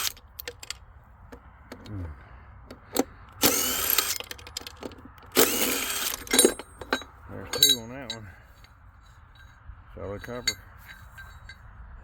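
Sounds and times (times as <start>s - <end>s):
power drill bursts: 0.0s - 0.7s, 2.8s - 7.0s
tools and metal parts clicking: 0.0s - 0.8s, 2.7s - 8.7s, 10.2s - 11.6s.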